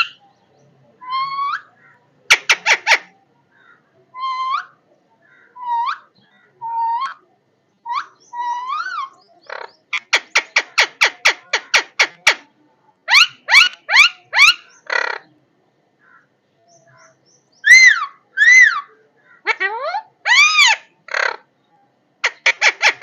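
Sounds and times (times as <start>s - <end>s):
parrot whistling and squawking: 13.1s - 15.2s, 17.6s - 18.9s, 19.5s - 21.4s.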